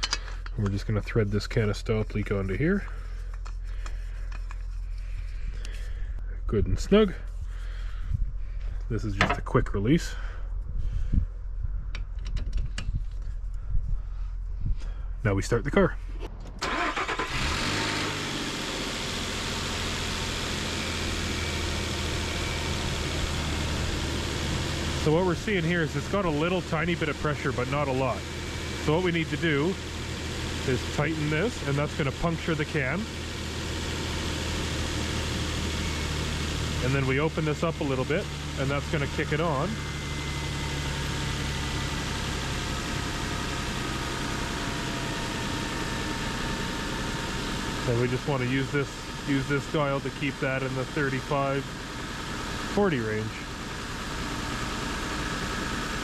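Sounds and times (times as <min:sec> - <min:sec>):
car engine starting and idling: 0:15.3 - 0:56.0.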